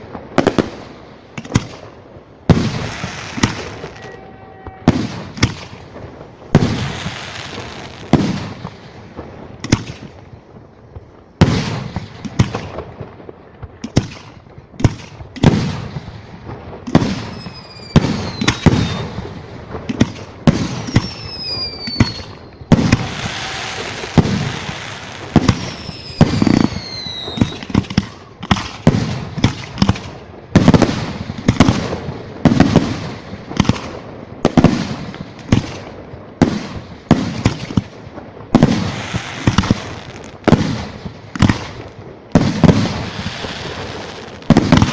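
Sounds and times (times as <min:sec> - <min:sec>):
firework bangs: 0:00.0 - 0:44.9
firework crackling: 0:00.0 - 0:44.9
falling firework whistles: 0:02.9 - 0:05.5, 0:17.2 - 0:19.2, 0:20.8 - 0:28.4.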